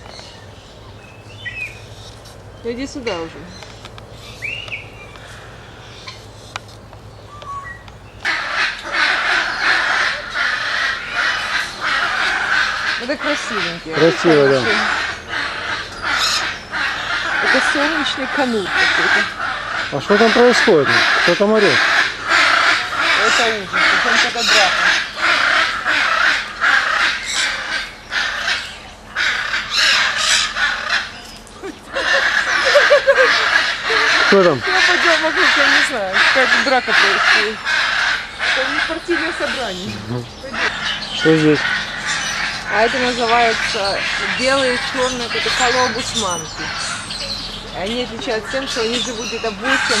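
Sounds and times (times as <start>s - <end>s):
faint clicks: 3.6s - 5.4s
many animals screeching: 7.4s - 50.0s.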